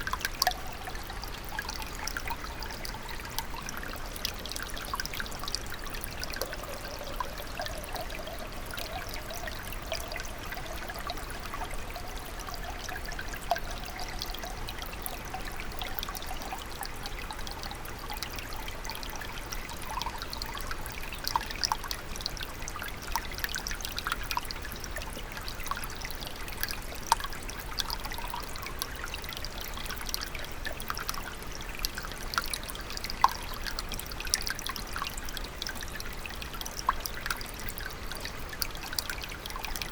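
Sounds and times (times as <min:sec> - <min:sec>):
stream trickling and burbling: 0:00.0 - 0:39.9
water splashes and drips: 0:00.0 - 0:39.9.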